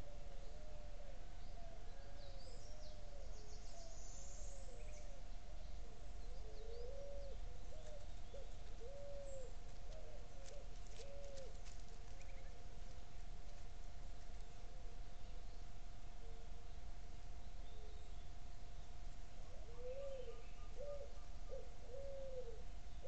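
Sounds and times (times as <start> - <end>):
birds hooting: 0.0 - 11.6, 19.5 - 23.0
low electronic hum: 0.0 - 23.0
faint high bird chirps: 19.6 - 23.0.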